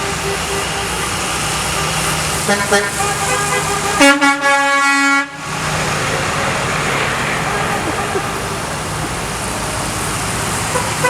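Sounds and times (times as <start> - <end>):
truck air horn blasts: 0.0 - 8.7, 10.6 - 11.0
traffic noise: 0.0 - 11.0
truck engine running: 0.0 - 11.0.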